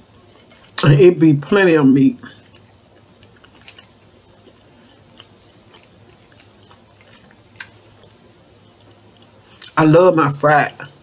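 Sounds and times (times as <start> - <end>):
person chewing quietly: 2.2 - 9.8.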